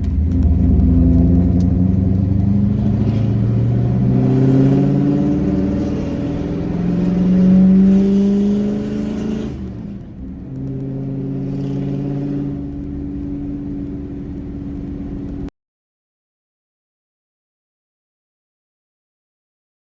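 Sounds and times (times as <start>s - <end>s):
truck engine accelerating: 0.0s - 15.5s.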